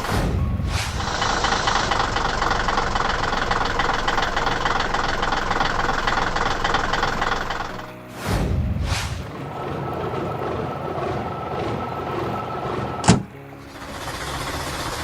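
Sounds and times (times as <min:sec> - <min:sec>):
diesel engine knocking rattle: 0:01.0 - 0:07.9, 0:09.6 - 0:15.0.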